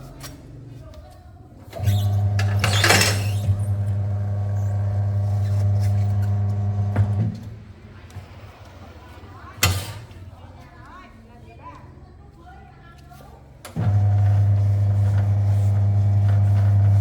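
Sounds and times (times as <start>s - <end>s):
low mechanical hum: 1.7s - 7.6s, 13.7s - 17.0s.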